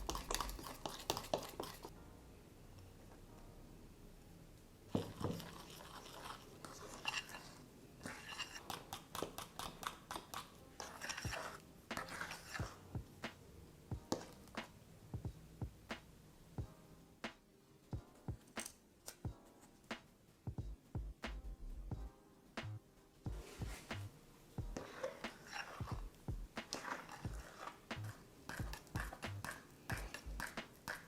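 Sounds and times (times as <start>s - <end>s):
utensil scraping mixing bowl: 0.0s - 1.9s, 4.9s - 12.8s, 24.8s - 31.0s.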